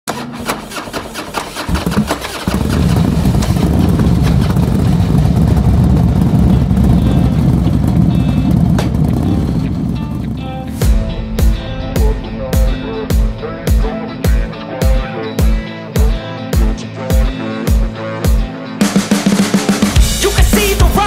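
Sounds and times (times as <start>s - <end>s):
motorbike engine running: 0.7s - 12.1s.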